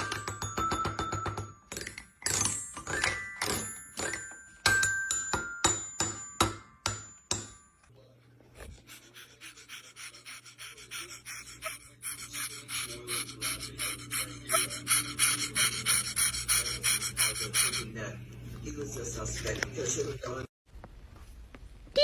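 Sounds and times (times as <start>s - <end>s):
steady low hum: 8.0s - 20.4s.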